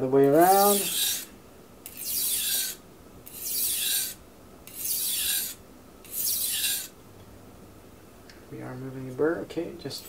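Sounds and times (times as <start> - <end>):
knife scraping on sharpening stone: 0.3 - 6.9.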